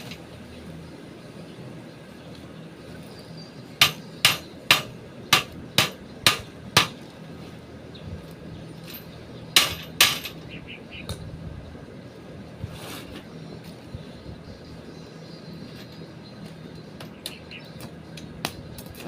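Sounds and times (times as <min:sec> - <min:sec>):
hammer strikes: 0:03.8 - 0:07.0, 0:09.6 - 0:10.4.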